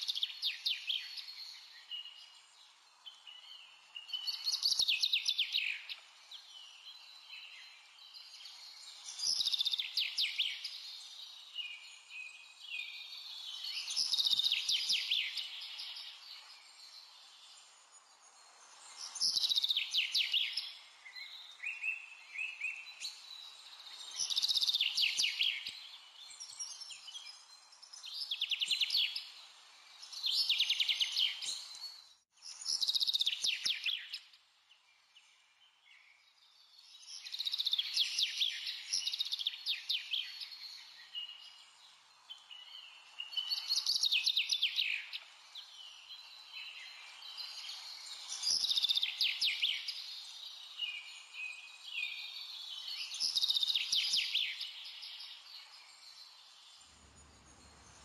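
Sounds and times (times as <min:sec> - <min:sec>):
faint steady hiss: 0:36.8 - 0:58.0.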